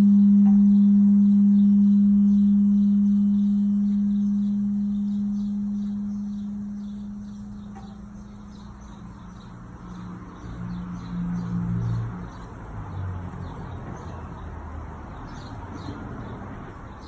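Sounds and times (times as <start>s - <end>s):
water heater humming: 0.0s - 9.0s
faint chirping: 0.0s - 17.0s.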